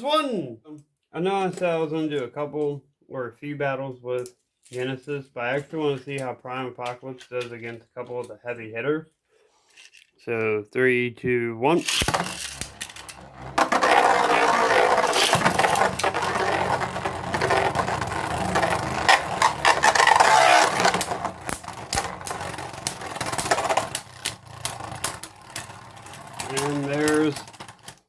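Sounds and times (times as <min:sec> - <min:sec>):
spinning tops whirring scrape: 0:11.8 - 0:28.0.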